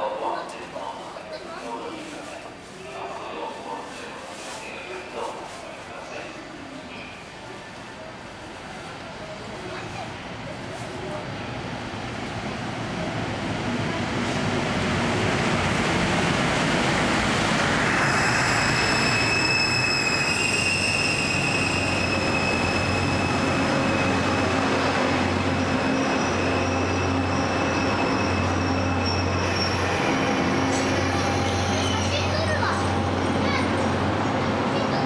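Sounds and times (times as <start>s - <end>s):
high-pitched wheel squeal: 18.0s - 24.3s.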